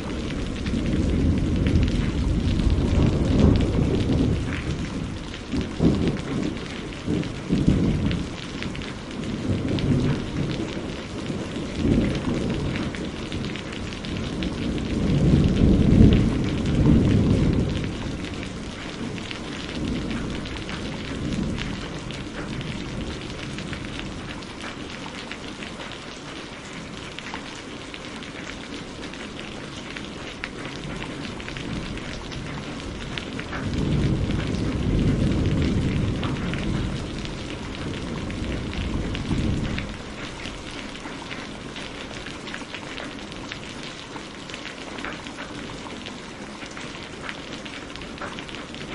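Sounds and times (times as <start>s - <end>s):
deep rolling thunder: 0.0s - 24.8s, 30.5s - 42.6s
steady rain falling: 0.0s - 48.9s.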